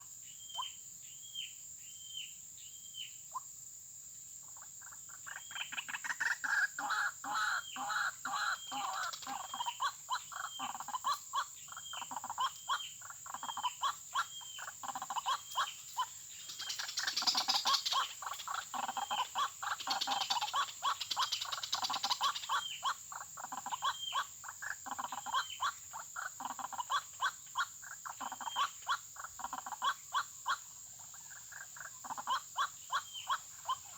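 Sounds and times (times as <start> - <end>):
waterhens croaking calls: 5.8 - 30.6.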